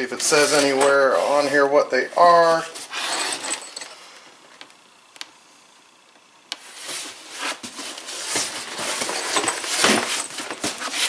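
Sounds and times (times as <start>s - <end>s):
packaging crinkling and rustling: 6.6s - 11.0s.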